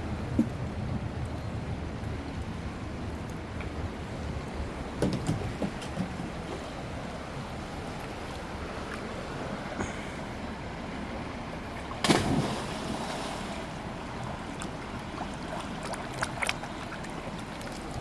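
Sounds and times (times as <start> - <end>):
river water rushing: 6.2 - 18.0.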